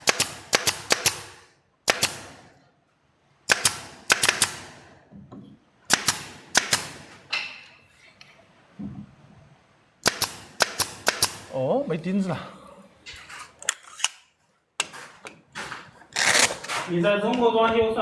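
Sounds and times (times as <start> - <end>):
nail gun firing into wood: 0.0 - 2.4, 3.5 - 4.8, 5.9 - 7.1, 10.0 - 11.5.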